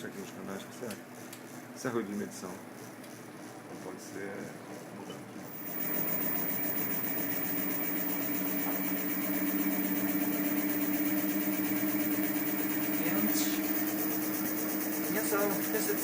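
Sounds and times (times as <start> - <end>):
electric motor hum: 5.4 - 16.0.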